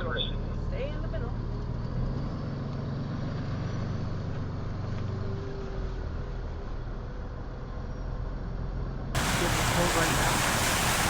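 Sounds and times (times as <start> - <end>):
road noise hiss: 9.2 - 11.0
truck engine running: 9.2 - 11.0.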